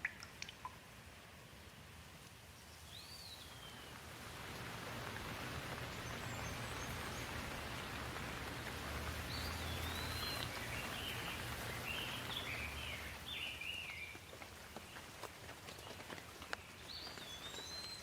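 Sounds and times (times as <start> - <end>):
rain falling: 2.1 - 18.0
small bird singing: 9.3 - 14.2, 16.6 - 18.0.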